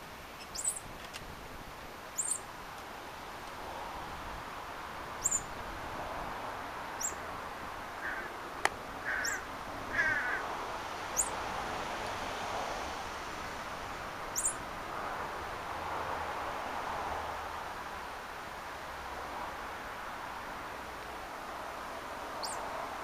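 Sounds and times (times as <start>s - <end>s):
rough bird calls: 0.4s - 0.8s, 2.2s - 2.4s, 8.0s - 8.4s, 9.0s - 10.4s
birds chirping: 0.4s - 0.9s, 2.2s - 2.5s, 5.2s - 5.5s, 7.0s - 7.2s, 9.0s - 10.4s, 11.2s - 11.4s, 14.3s - 14.6s, 22.4s - 22.6s.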